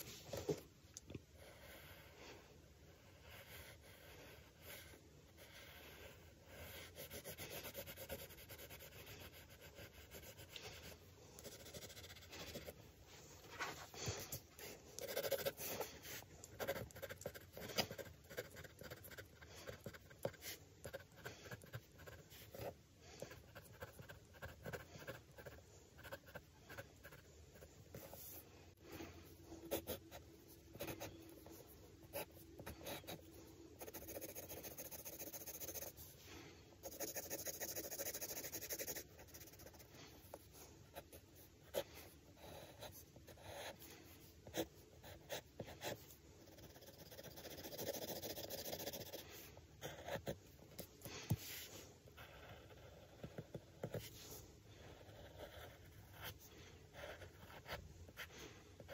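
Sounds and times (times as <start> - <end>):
drawing tool scratching paper: 3.1 - 12.8, 14.1 - 28.4, 29.6 - 36.0, 36.8 - 43.8, 44.4 - 49.2, 54.9 - 56.4.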